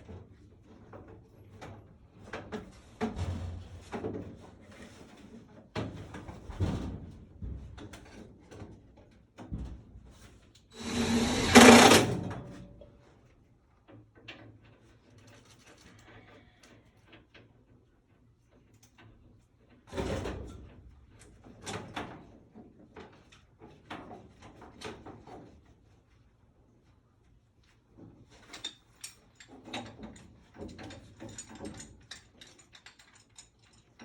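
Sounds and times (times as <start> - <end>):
knocks clicks and scraping: 10.8 - 12.5.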